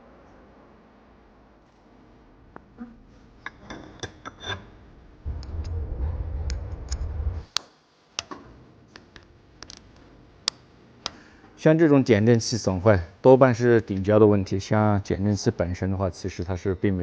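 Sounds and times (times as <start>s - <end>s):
low rumbling noise: 4.4s - 7.6s.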